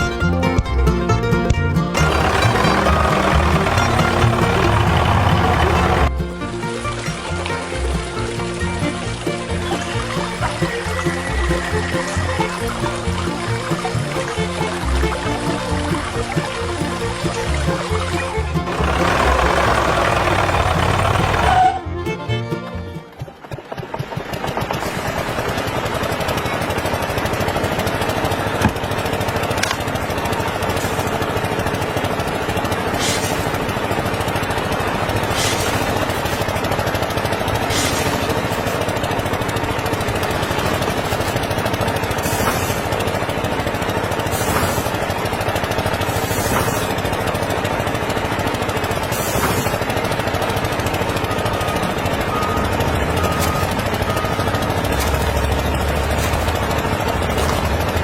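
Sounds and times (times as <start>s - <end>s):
small motor machine running: 2.0s - 6.1s, 18.6s - 21.8s, 24.9s - 58.0s.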